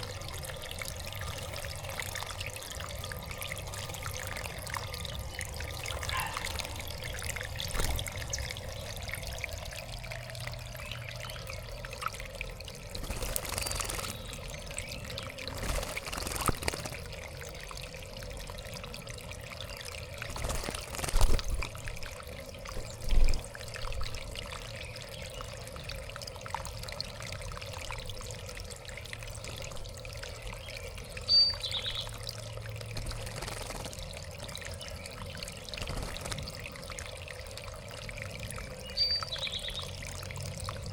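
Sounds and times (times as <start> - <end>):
water trickling in fountain: 0.0 - 40.9
high bird call: 6.0 - 6.6.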